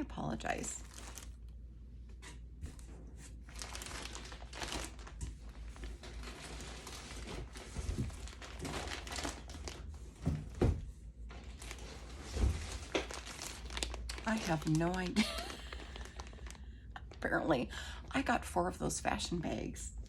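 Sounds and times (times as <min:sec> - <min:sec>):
plastic packaging crinkling: 0:00.5 - 0:01.6, 0:03.3 - 0:10.3, 0:11.3 - 0:17.3.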